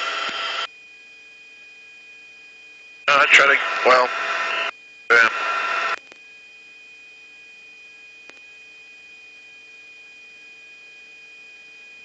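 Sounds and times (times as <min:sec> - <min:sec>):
electronic radio hum: 0:00.0 - 0:00.7, 0:03.1 - 0:06.2.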